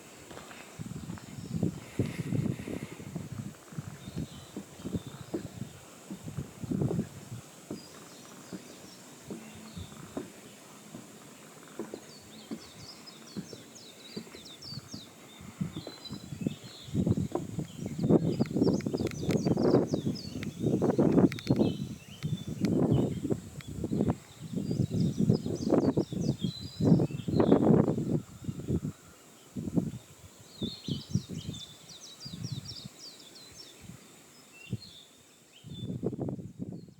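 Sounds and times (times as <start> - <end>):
small birds chirping: 0.4 - 36.9
low rustling thumps: 0.8 - 15.0
light knocks and scuffs: 4.5 - 14.6.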